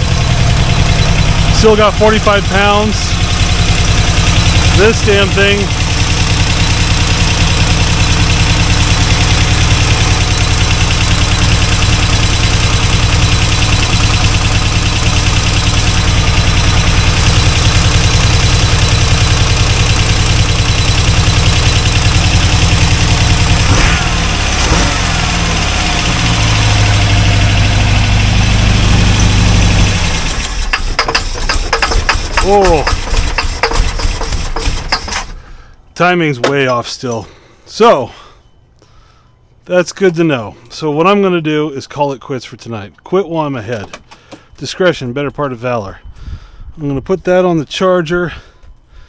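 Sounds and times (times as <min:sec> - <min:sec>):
car engine idling: 0:00.0 - 0:37.4.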